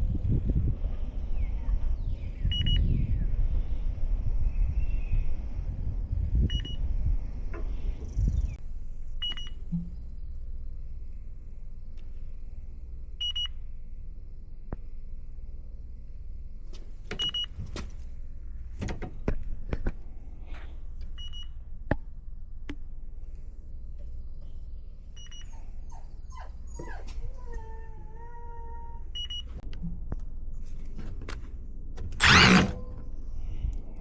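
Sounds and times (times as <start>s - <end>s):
leak detector high beeps: 2.5s - 2.9s
drawn-out whine: 32.0s - 33.9s.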